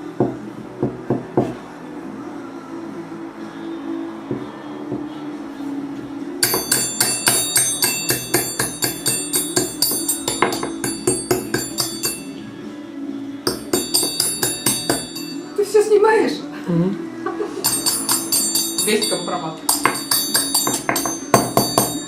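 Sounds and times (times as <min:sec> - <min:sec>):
hammer striking metal: 0:06.4 - 0:12.4, 0:13.5 - 0:15.6, 0:17.6 - 0:22.0.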